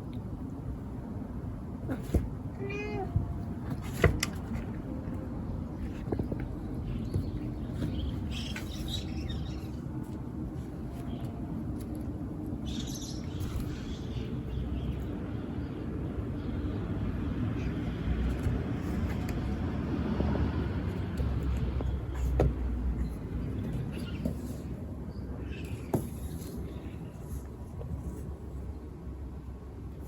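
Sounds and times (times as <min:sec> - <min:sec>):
vehicle passing with low rumble: 0:12.2 - 0:24.2.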